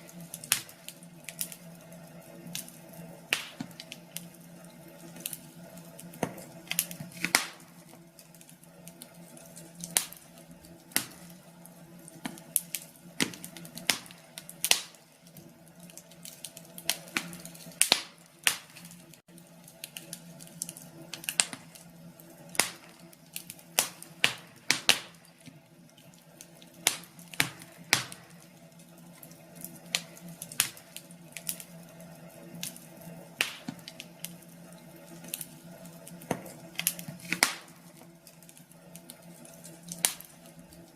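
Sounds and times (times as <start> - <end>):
faint steady hum: 0.0 - 40.9
wood fire crackling: 0.0 - 40.9.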